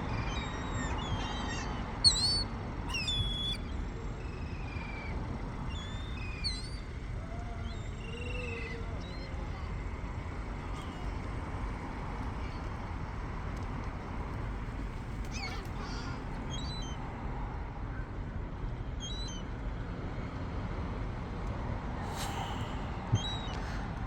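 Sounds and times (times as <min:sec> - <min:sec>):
seagulls calling: 0:00.3 - 0:12.8, 0:14.3 - 0:17.0.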